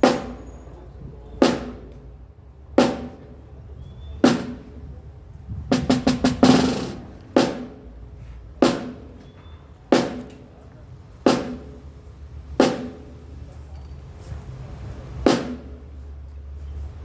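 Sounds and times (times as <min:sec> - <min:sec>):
snare drum hits: 0:00.0 - 0:00.5, 0:01.4 - 0:02.0, 0:02.8 - 0:03.2, 0:04.2 - 0:04.7, 0:05.7 - 0:07.8, 0:08.6 - 0:09.2, 0:10.0 - 0:10.4, 0:11.3 - 0:11.8, 0:12.6 - 0:13.1, 0:15.3 - 0:15.8.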